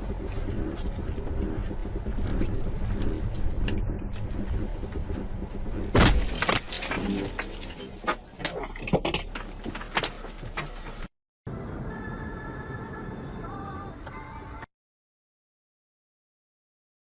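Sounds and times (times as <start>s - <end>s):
road noise: 0.0s - 14.6s
music: 11.5s - 14.7s.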